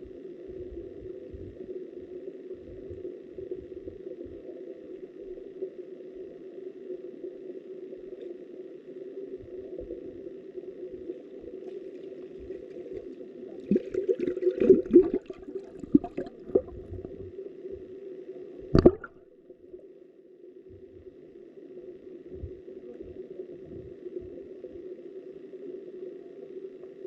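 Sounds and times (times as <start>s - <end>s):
underwater knocks and gurgles: 0.0s - 5.5s, 9.4s - 18.0s, 18.6s - 19.3s, 22.3s - 24.9s
muffled underwater river rush: 0.0s - 5.9s, 7.9s - 26.7s.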